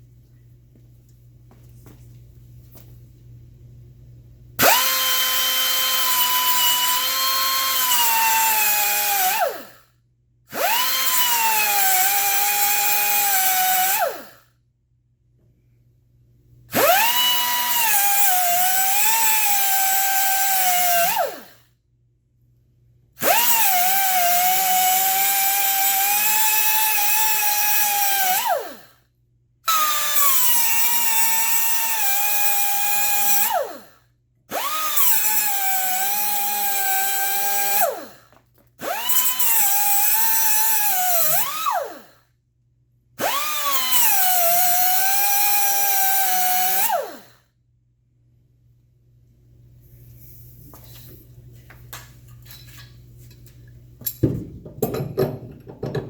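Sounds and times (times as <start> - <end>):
cutoff wheel cutting metal: 4.6 - 9.7, 10.5 - 14.4, 16.8 - 21.5, 23.2 - 28.8, 29.7 - 33.9, 34.6 - 42.2, 43.2 - 47.3.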